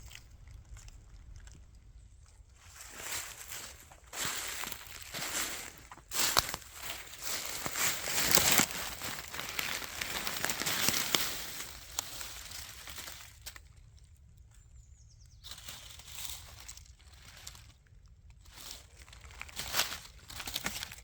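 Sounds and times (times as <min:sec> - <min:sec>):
footsteps crunching through dry leaves: 0:02.6 - 0:13.7, 0:15.4 - 0:17.8, 0:18.4 - 0:21.0.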